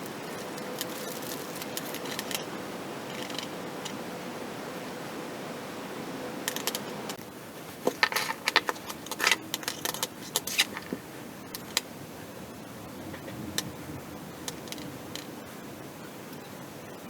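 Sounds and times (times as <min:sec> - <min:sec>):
plastic parts clicking and rattling: 0:00.3 - 0:02.5, 0:07.8 - 0:11.0, 0:11.6 - 0:11.8.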